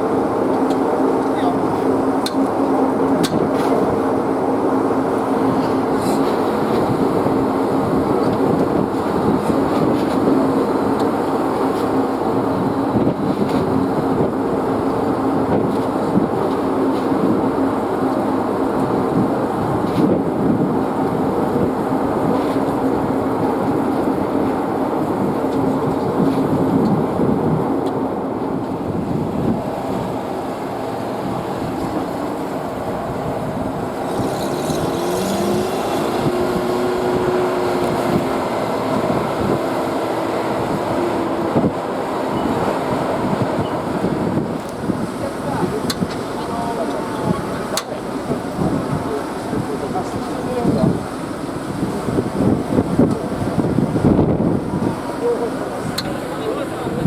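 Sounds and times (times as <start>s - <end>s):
vehicle engine humming: 28.2s - 48.6s.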